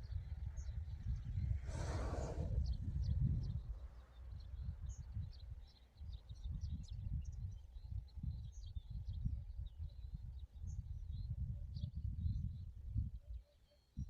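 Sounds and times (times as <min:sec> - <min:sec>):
small birds chirping: 0:00.0 - 0:12.6
low rumble: 0:01.5 - 0:03.4.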